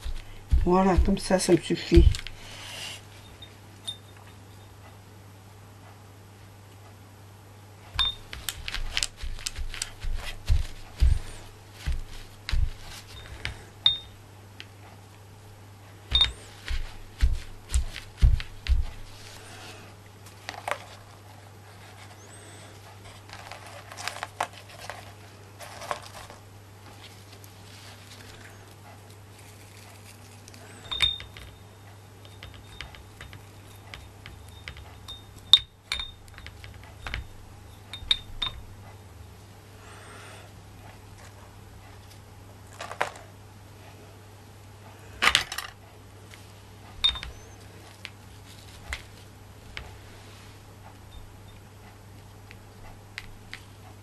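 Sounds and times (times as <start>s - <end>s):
rubbing and rustling: 0.0s - 3.3s, 8.0s - 13.8s, 16.0s - 30.8s, 47.3s - 50.6s
low electrical hum: 0.0s - 54.0s
knocks and taps: 16.1s - 19.1s.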